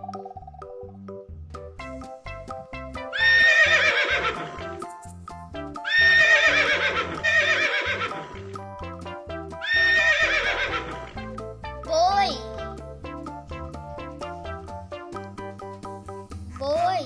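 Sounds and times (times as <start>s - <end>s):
upbeat children's music: 0.0s - 17.0s
horse neighing: 3.1s - 4.8s, 5.8s - 8.5s, 9.6s - 11.1s.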